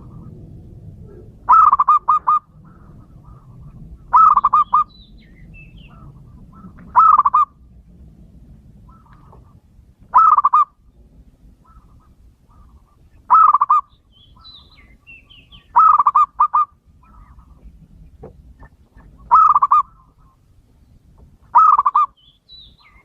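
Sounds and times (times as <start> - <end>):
dove cooing: 0.0 - 4.9, 5.8 - 7.6, 8.8 - 10.8, 11.6 - 17.8, 19.0 - 20.4, 21.5 - 22.2
low steady hum: 0.0 - 23.0.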